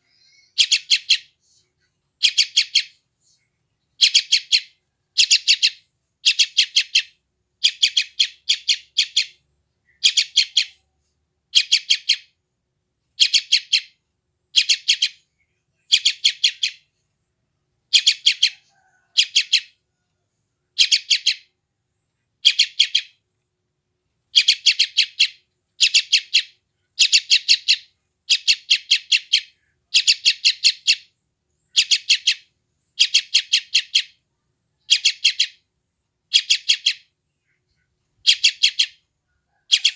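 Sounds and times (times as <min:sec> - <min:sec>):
chick begging calls: 0:17.9 - 0:20.1, 0:36.3 - 0:39.9.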